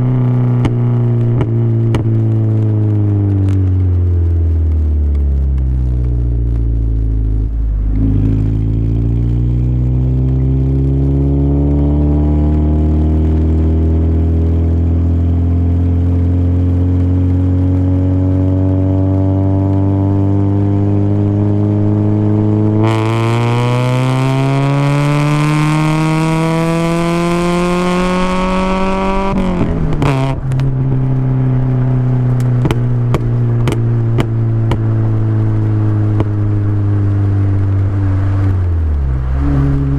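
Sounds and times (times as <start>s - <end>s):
car engine revving through gears: 7.9s - 39.9s.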